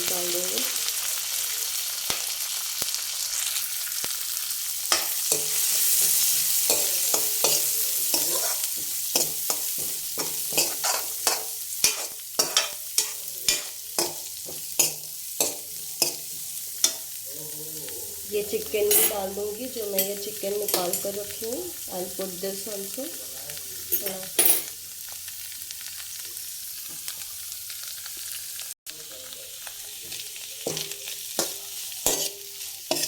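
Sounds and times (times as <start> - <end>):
garlic sizzling in butter: 0.0 - 33.0
spoon knocking against pan: 6.7 - 17.1.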